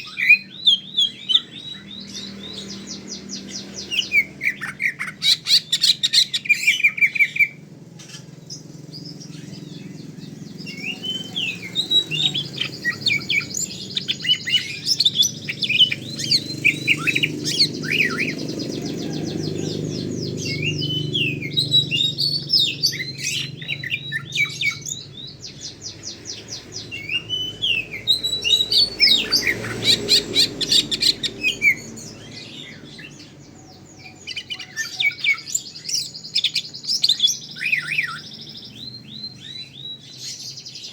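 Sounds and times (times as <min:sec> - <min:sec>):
bird song with trills: 0:00.0 - 0:40.9.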